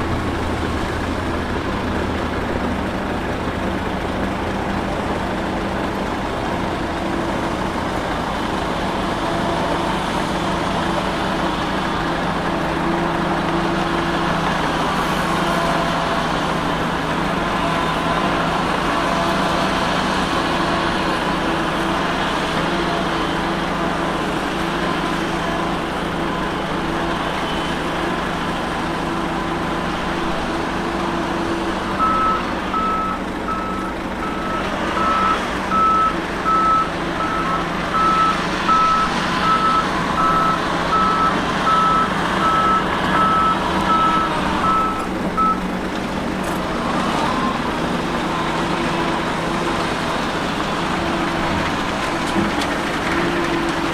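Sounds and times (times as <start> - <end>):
heavy machinery diesel engine: 0.0 - 53.9
reversing alarm beeping: 31.9 - 45.6.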